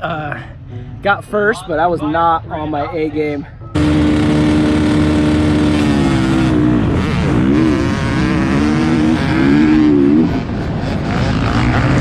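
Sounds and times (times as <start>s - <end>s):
motocross bike engine revving: 3.8s - 12.0s.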